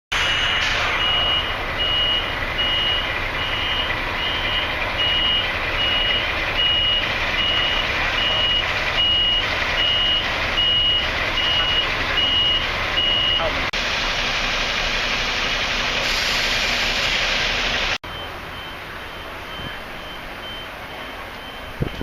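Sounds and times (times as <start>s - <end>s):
electronic warning beeps: 0.2s - 13.6s, 18.1s - 22.0s.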